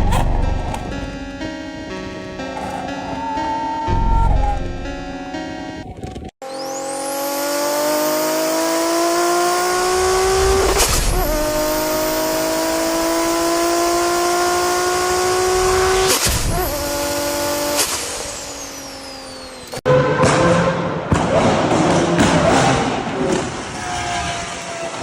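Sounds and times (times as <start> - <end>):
car engine accelerating hard: 6.4 - 19.8.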